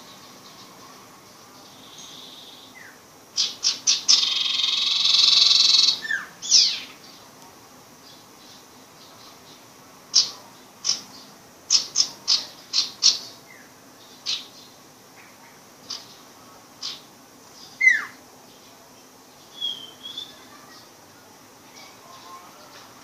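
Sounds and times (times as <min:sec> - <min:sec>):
bird chipping: 0:03.4 - 0:07.1.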